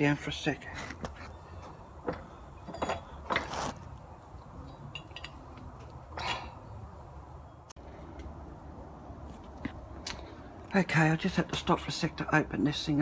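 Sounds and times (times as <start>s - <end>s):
metal clinks and scrapes: 2.1s - 6.4s.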